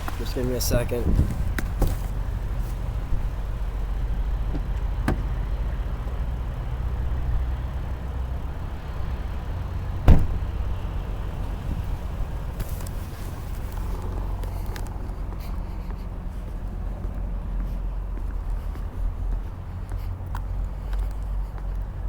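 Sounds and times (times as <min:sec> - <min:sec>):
steady low rumble: 0:00.0 - 0:22.0
car door shutting: 0:01.0 - 0:02.2, 0:04.5 - 0:05.4, 0:10.0 - 0:10.6.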